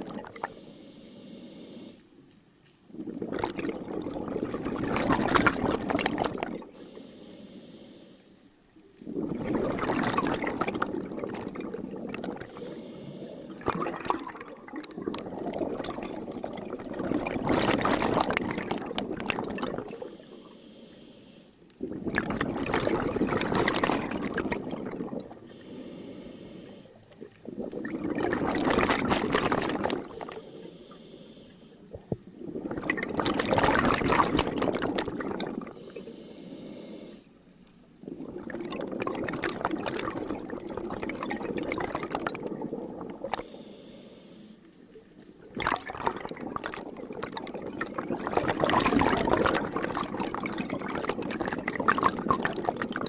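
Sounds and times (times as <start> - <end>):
exhaled bubbles underwater: 0.0 - 1.9, 2.9 - 7.1, 8.7 - 20.5, 21.7 - 43.7, 44.6 - 53.0
regulator inhale hiss: 0.4 - 2.2, 6.7 - 8.6, 12.4 - 13.7, 19.9 - 21.8, 25.4 - 27.2, 30.0 - 32.2, 35.7 - 37.6, 43.3 - 44.9.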